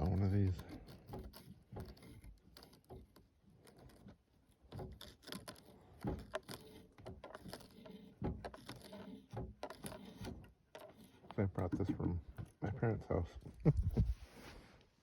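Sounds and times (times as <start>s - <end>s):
handsaw clinking and knocking: 4.7s - 12.6s.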